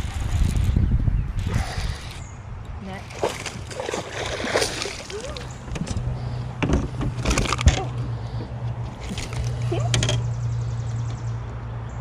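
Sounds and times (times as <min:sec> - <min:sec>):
water sloshing against boat: 0:01.4 - 0:10.5.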